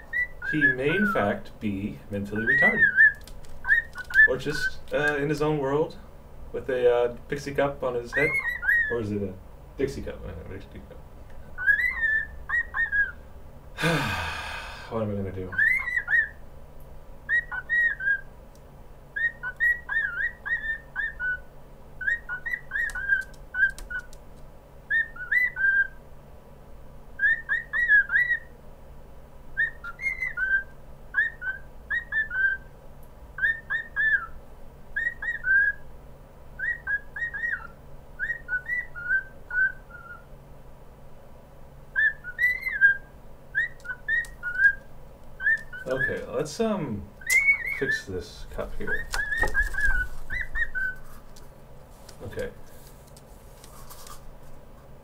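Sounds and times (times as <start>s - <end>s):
cockatiel whistling: 0.0s - 1.3s, 2.4s - 4.8s, 8.1s - 8.9s, 11.6s - 13.2s, 15.5s - 16.4s, 17.3s - 18.3s, 19.2s - 24.1s, 24.9s - 26.0s, 27.2s - 28.5s, 29.6s - 32.7s, 33.4s - 34.4s, 35.0s - 35.8s, 36.6s - 40.3s, 41.9s - 44.8s, 45.4s - 46.2s, 47.2s - 48.0s, 48.9s - 51.0s.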